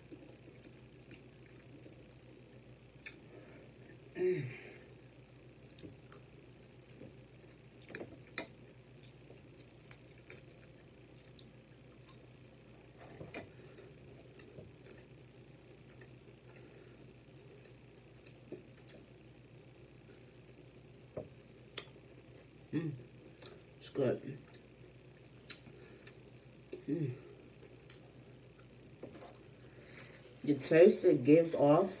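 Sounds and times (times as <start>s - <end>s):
short vocal hum: 4.1s - 4.9s, 22.7s - 23.1s, 26.7s - 27.4s
chewing with wet mouth clicks: 5.2s - 12.3s, 21.7s - 22.0s, 25.4s - 26.2s.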